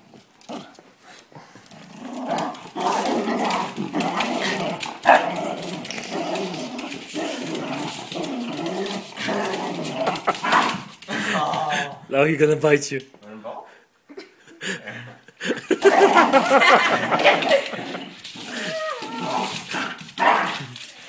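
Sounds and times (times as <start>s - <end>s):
dog growling: 1.5s - 12.1s, 15.8s - 20.8s.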